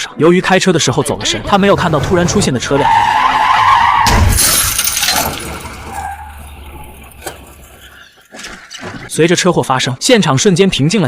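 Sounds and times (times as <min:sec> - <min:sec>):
tyre screech: 0:01.3 - 0:08.1
heavy crash impact: 0:04.0 - 0:06.4
glass shattering: 0:04.0 - 0:07.8.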